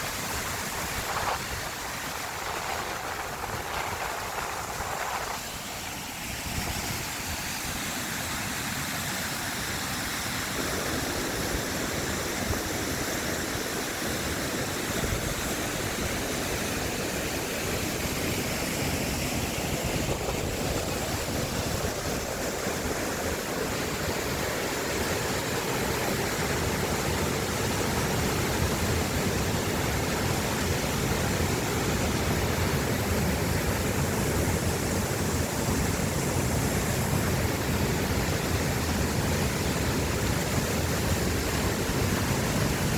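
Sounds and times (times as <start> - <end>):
stream rushing: 0.0 - 42.9.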